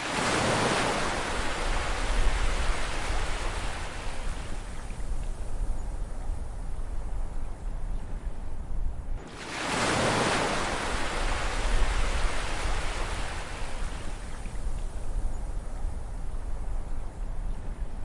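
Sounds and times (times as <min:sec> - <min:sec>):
wave breaking on shore: 0:00.0 - 0:04.3, 0:09.2 - 0:14.2
low rumble of surf: 0:00.0 - 0:18.0.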